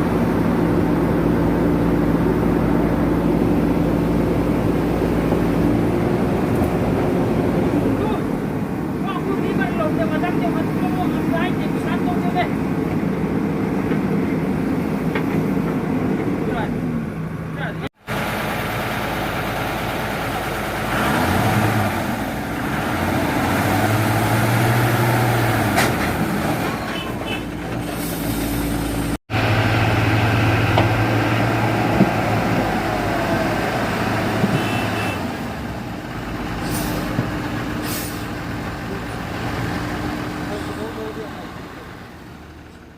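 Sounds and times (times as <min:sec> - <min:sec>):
truck diesel engine labouring: 0:00.0 - 0:42.9
short air hisses: 0:36.6 - 0:37.2, 0:37.8 - 0:38.3.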